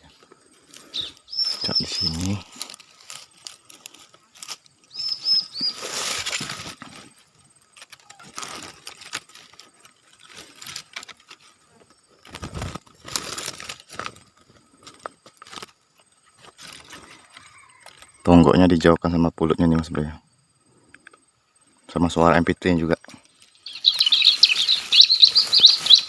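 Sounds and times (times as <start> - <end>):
rustling: 0.0 - 18.1, 23.2 - 26.0
small bird chirping: 0.8 - 10.5, 22.9 - 26.0.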